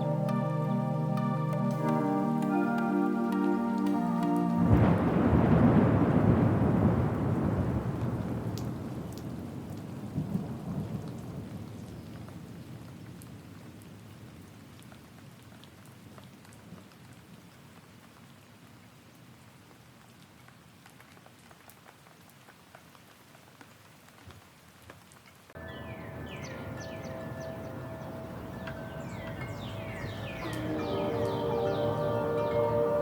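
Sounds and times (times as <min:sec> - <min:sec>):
rain falling: 0:00.0 - 0:33.0
thunder rumbling: 0:04.0 - 0:11.7
water drip ticks: 0:08.5 - 0:10.4.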